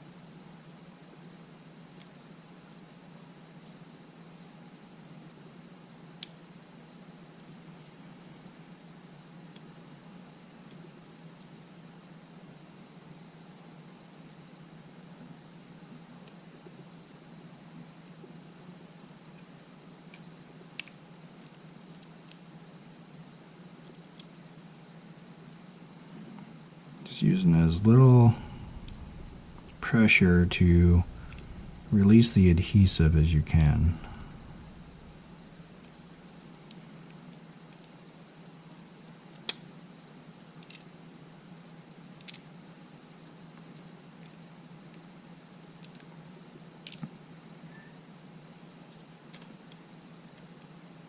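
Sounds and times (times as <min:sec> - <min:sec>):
faint low hum: 0:06.5 - 0:22.8, 0:23.8 - 0:37.4
steady low hum: 0:26.8 - 0:37.0.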